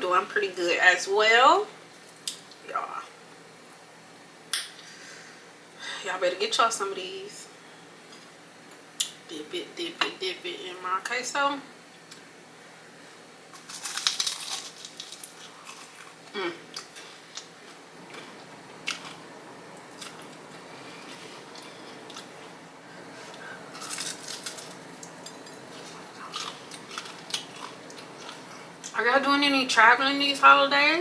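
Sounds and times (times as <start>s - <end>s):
crunchy biting and chewing: 13.5s - 22.5s, 23.3s - 28.7s.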